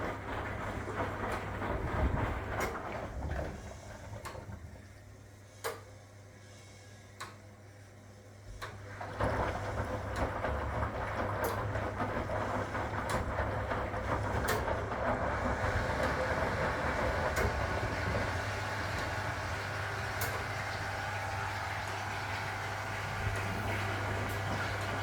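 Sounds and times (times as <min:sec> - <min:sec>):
washing machine rushing and rattling: 0:00.0 - 0:05.3, 0:08.4 - 0:25.0
washing machine motor hum: 0:00.0 - 0:25.0.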